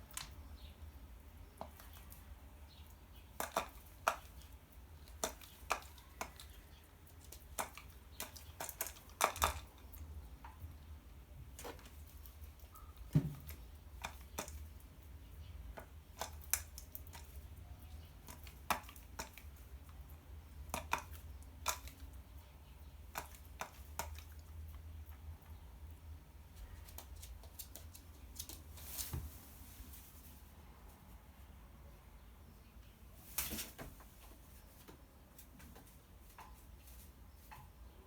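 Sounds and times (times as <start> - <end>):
bird beak pecking dry food: 3.2 - 10.6, 11.5 - 14.9, 15.7 - 24.6.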